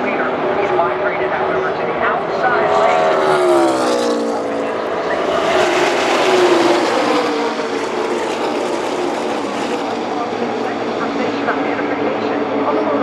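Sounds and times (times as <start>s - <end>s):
race car engines passing: 0.0s - 13.0s.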